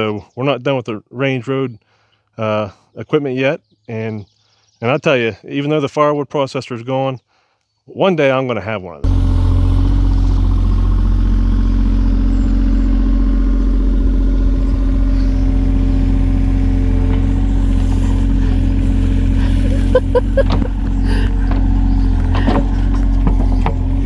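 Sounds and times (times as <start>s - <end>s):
engine running: 9.0s - 24.0s
short knocks or clanks: 20.0s - 24.0s.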